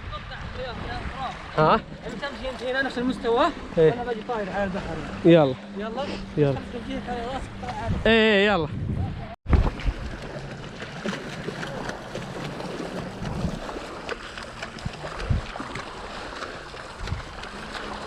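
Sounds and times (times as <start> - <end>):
horse splashing through water: 9.5 - 18.0.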